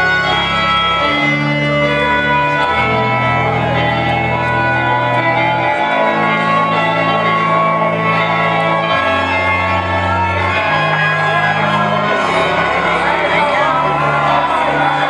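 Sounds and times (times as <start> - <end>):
organ playing held chords: 0.0 - 15.0
crowd shouting and whooping: 10.1 - 15.0.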